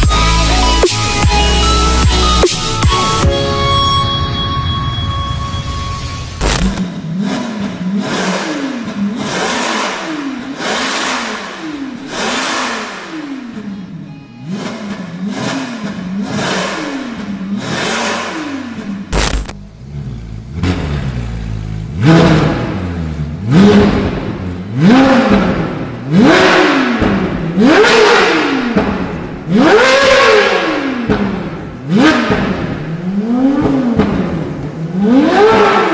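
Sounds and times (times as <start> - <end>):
car engine revving: 6.3 - 35.9
sharp crack: 6.4 - 6.8, 19.1 - 19.6.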